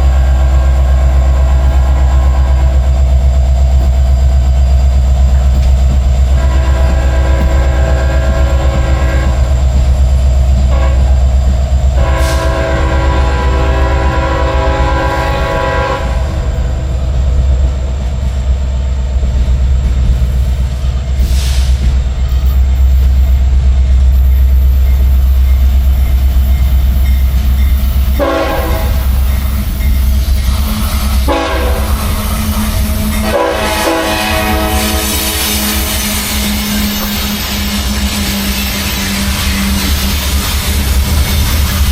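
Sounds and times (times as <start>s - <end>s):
train air horn blasts: 0.0s - 2.8s, 6.3s - 9.6s, 10.7s - 11.3s, 11.9s - 16.7s, 28.1s - 29.3s, 30.4s - 37.5s
diesel locomotive engine rumble: 0.0s - 41.9s.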